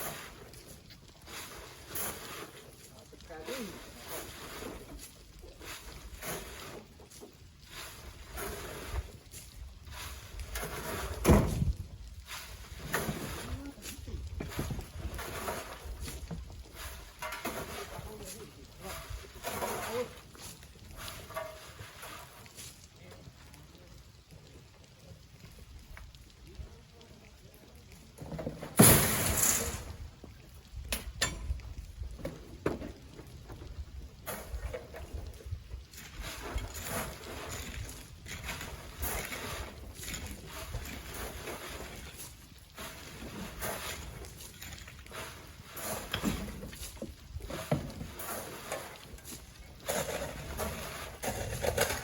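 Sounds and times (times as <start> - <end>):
sand pouring into truck bed: 0.0 - 22.8, 28.7 - 30.0, 36.0 - 52.0.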